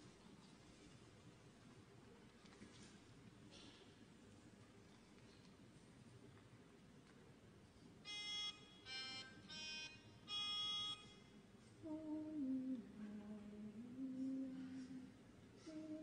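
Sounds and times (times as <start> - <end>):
low voices humming: 11.8 - 16.0.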